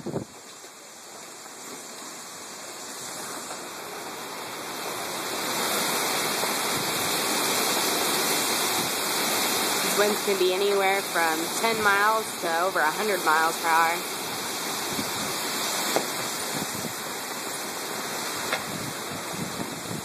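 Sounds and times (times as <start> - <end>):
strong wind rushing: 0.0 - 0.3, 16.3 - 17.1, 18.5 - 20.0.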